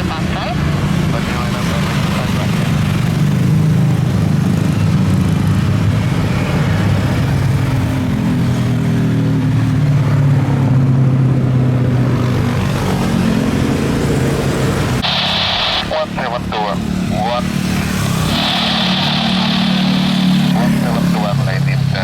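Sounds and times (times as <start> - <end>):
jet engines rumbling: 15.0 - 22.0.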